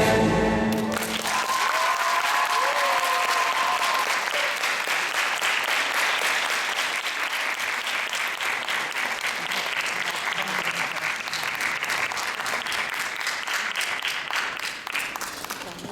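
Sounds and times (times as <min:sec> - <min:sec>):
people cheering: 0:00.7 - 0:13.0
audience applauding: 0:00.7 - 0:15.9.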